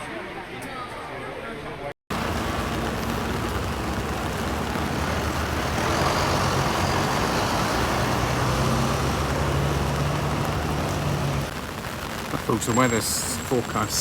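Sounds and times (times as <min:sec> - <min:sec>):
large vehicle engine running: 0:02.1 - 0:11.5
street noise hiss: 0:02.1 - 0:14.0.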